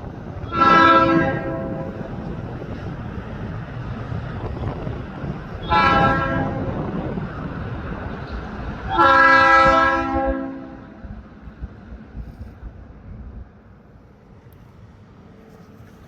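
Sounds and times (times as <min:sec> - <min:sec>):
moving train rumbling: 0:00.0 - 0:16.0
locomotive air horn blasts: 0:00.4 - 0:01.9, 0:05.6 - 0:06.7, 0:08.9 - 0:11.0.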